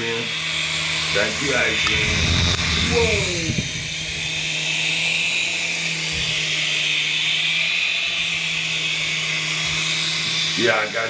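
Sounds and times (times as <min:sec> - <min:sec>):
toy helicopter motor whine: 0:01.1 - 0:03.8
rotor low hum: 0:01.1 - 0:04.0.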